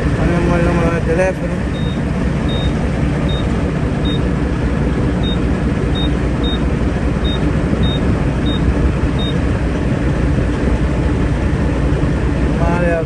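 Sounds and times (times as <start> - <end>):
truck engines idling: 0.0 - 13.0
keypad beeps: 1.6 - 4.2, 6.0 - 6.6, 7.2 - 9.4.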